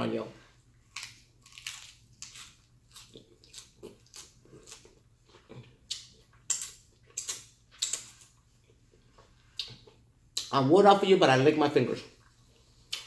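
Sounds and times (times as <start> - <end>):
wet chewing clicks and smacks: 1.0 - 8.8.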